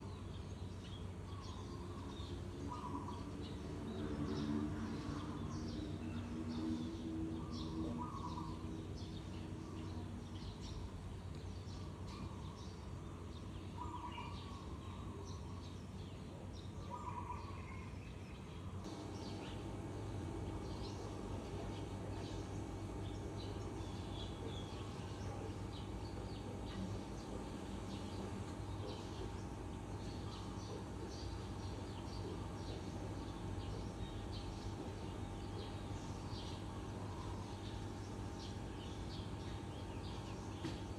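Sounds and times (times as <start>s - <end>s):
birds chirping and calling: 0.1s - 40.9s
steady low hum: 18.1s - 40.9s.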